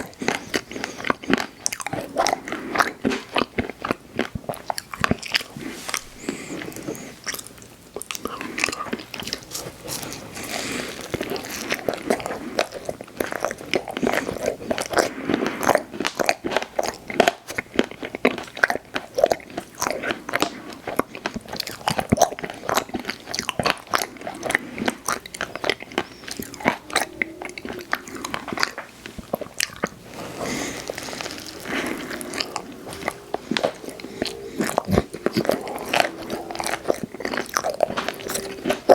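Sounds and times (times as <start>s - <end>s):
ice cream crunching and chewing: 0.0s - 38.9s.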